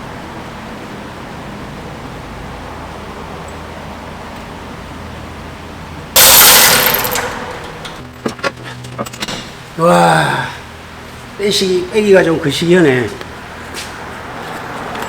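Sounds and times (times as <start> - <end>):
machine humming: 6.2 - 8.1.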